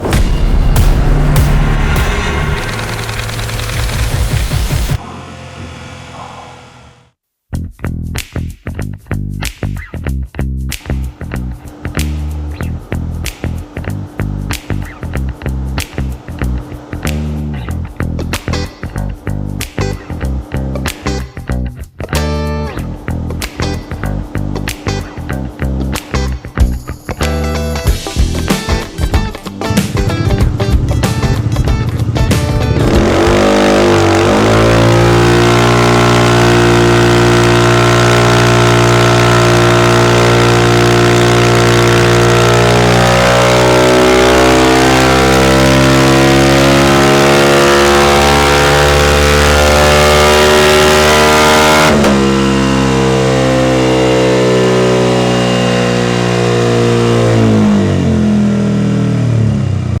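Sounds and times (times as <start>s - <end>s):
burst of music: 0.0s - 7.0s, 26.0s - 52.0s
motor scooter engine revving: 29.6s - 60.0s.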